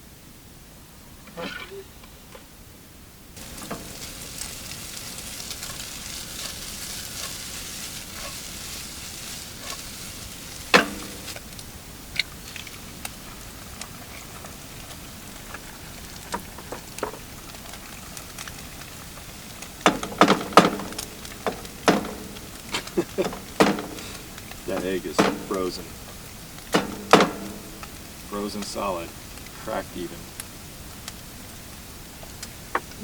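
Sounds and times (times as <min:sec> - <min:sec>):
food sizzling in a frying pan: 0:03.4 - 0:33.0
utensil clinks and knocks: 0:10.7 - 0:11.4, 0:19.8 - 0:26.2, 0:26.8 - 0:28.0.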